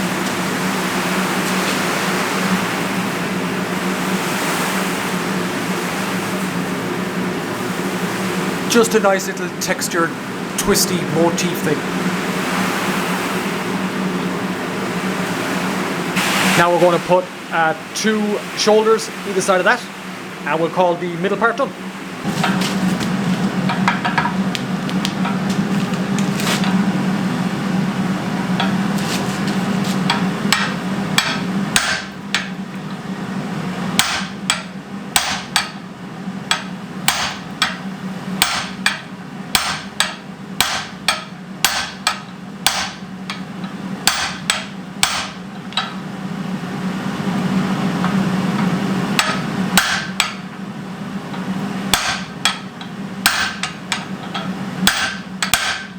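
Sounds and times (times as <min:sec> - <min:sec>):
steady low hum: 0:00.0 - 0:55.9
hammer striking steel on anvil: 0:30.1 - 0:32.6, 0:34.0 - 0:35.8, 0:36.5 - 0:37.8, 0:38.4 - 0:43.4, 0:44.0 - 0:46.0, 0:49.2 - 0:50.4, 0:51.9 - 0:55.9.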